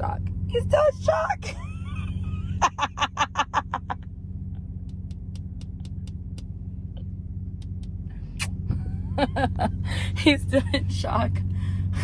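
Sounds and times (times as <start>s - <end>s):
vehicle engine idling: 0.0s - 12.0s
sharp clicks: 4.8s - 6.5s, 7.6s - 8.6s.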